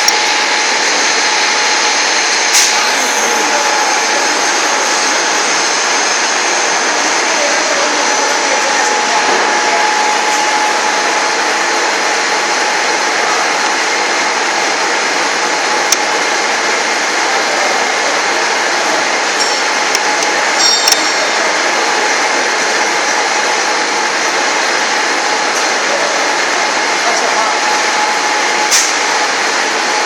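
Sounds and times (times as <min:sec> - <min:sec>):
grinder motor running: 0:00.0 - 0:14.1.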